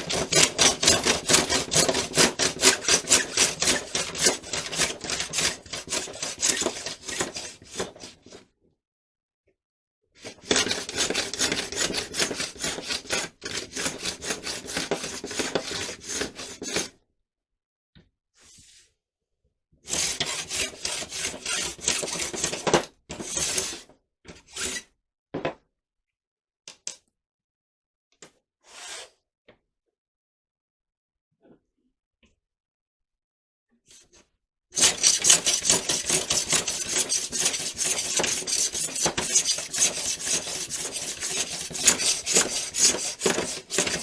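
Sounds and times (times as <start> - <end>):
hand scraping dried glue: 34.8 - 44.0.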